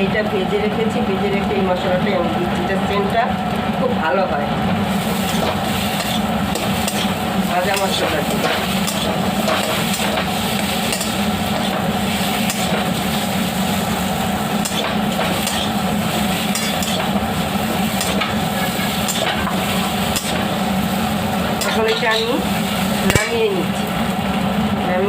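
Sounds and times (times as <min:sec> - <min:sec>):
food sizzling in pan: 0:04.5 - 0:24.8
spatula scraping pan: 0:05.0 - 0:13.0.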